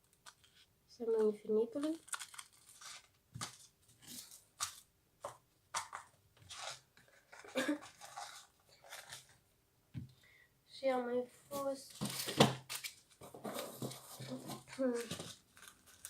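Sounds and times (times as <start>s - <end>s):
packaging crinkling and rustling: 1.7s - 4.8s, 11.9s - 16.0s.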